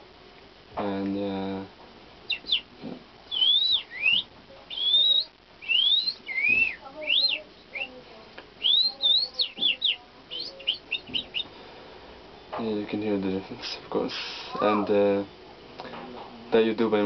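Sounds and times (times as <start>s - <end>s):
person whistling bird calls: 3.3s - 8.0s, 8.6s - 11.5s.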